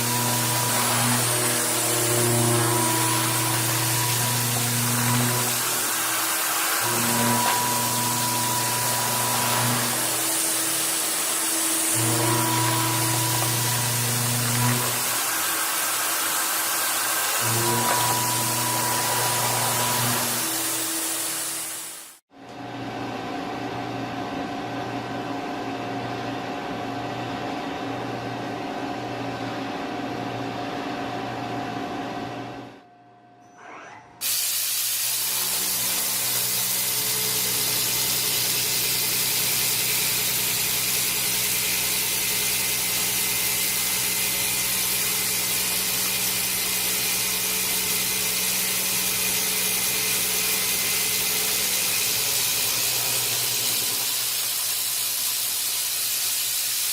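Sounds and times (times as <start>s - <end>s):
industrial machine humming: 0.0s - 22.1s.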